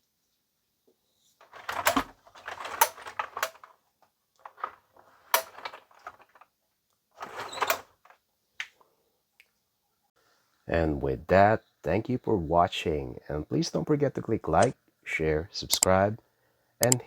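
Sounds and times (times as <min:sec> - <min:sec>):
plastic toy clicks and clatter: 0:01.4 - 0:03.8, 0:04.4 - 0:06.4, 0:07.2 - 0:08.2.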